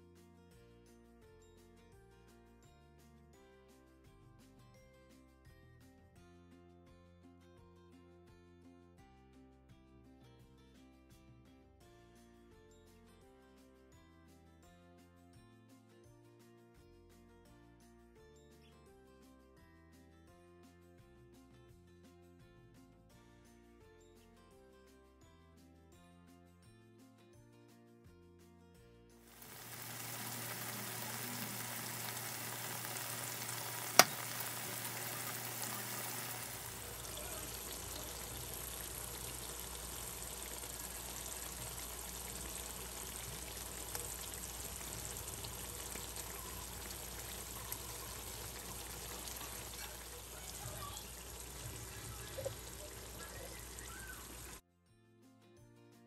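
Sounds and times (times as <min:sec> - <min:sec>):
curry sizzling in a pan: 0:29.3 - 0:54.6.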